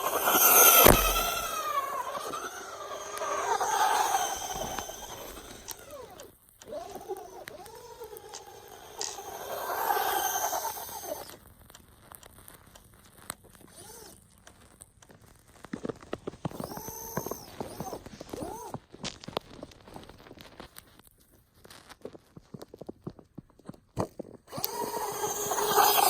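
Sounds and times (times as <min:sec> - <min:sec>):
toy truck electric motor whining: 0:00.0 - 0:11.4, 0:13.6 - 0:14.2, 0:16.4 - 0:19.3, 0:24.5 - 0:26.0
tyres churning through snow: 0:00.0 - 0:11.4, 0:16.4 - 0:18.8, 0:24.5 - 0:26.0
quick clicks: 0:00.0 - 0:12.3, 0:16.2 - 0:18.8, 0:24.5 - 0:26.0.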